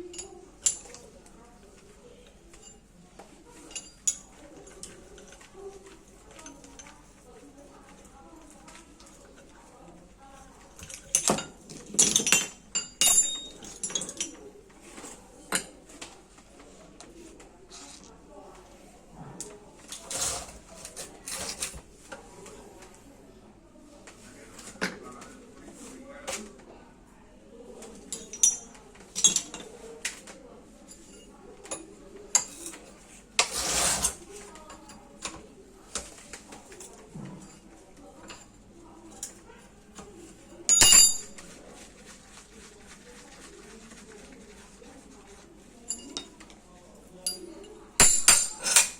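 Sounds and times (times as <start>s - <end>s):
metal tools clinking and knocking: 0.0s - 1.1s, 3.5s - 5.5s, 10.8s - 14.4s, 28.1s - 29.7s, 30.9s - 35.4s, 40.7s - 41.4s, 45.9s - 46.4s, 47.2s - 48.9s.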